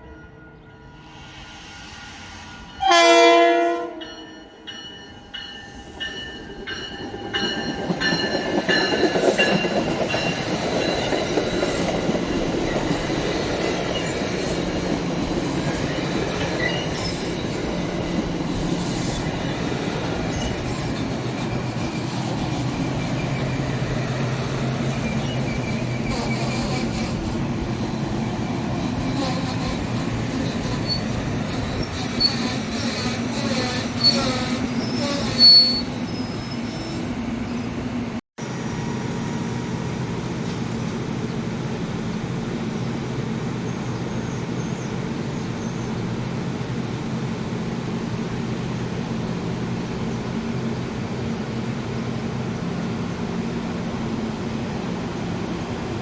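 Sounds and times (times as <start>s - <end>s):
train horn blast: 2.6s - 4.2s
train wheels rumbling and clattering: 4.0s - 38.1s.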